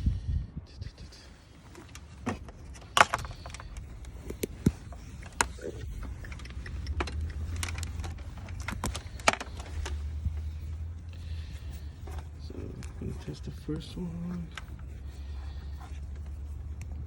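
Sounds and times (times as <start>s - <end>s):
clicks and knocks of hands working: 1.8s - 10.1s.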